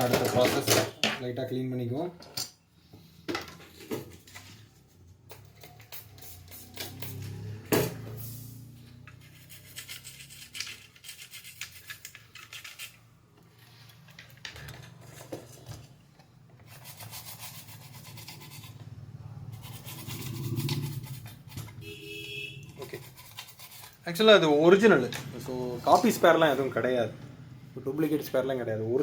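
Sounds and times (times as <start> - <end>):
brush scrubbing circuit board: 8.5 - 13.1, 16.6 - 24.6.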